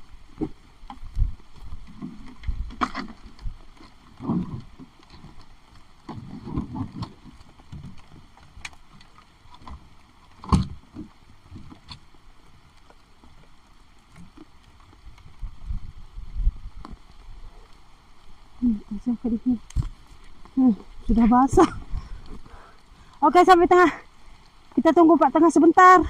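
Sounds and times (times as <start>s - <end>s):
heavy rain hiss: 17.5s - 26.0s.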